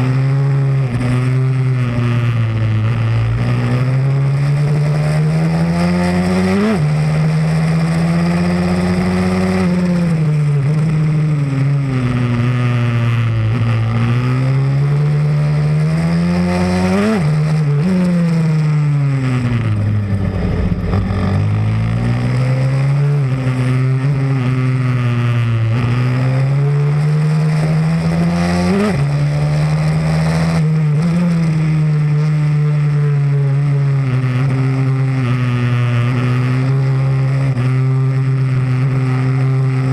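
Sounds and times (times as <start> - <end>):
pit bike engine accelerating: 13.7 - 31.8.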